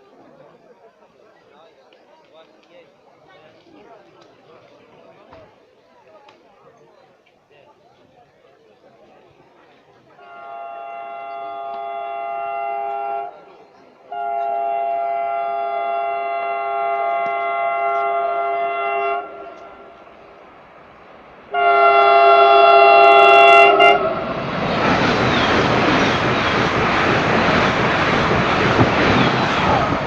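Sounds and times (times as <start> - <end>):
train horn blasts: 10.2 - 13.5, 14.1 - 20.1, 21.5 - 24.4
train rushing past: 14.1 - 30.0.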